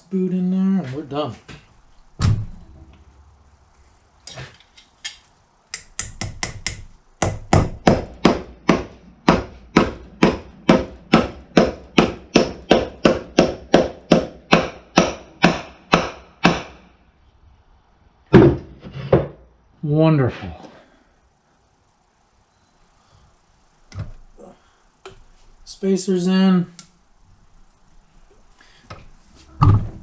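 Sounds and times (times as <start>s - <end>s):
hammer tapping metal: 5.7s - 16.8s.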